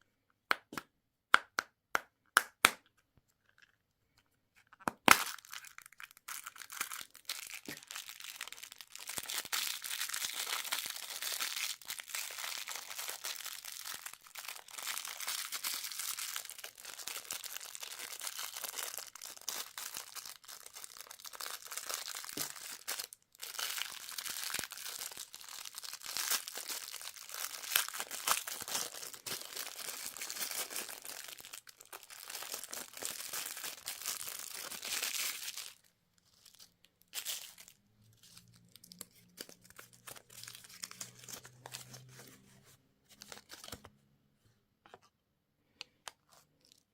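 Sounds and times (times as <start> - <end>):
wrappers crinkling and tearing: 5.1 - 42.4.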